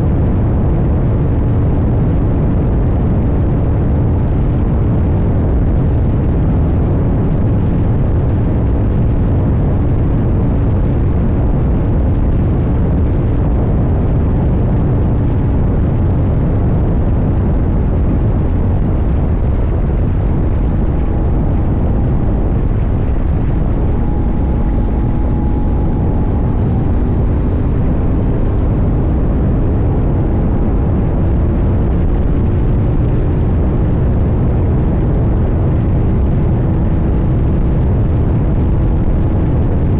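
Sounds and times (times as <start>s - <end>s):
heavy wind noise: 0.0s - 39.9s
road rumble: 0.0s - 39.9s
motorcycle engine running: 17.8s - 34.2s.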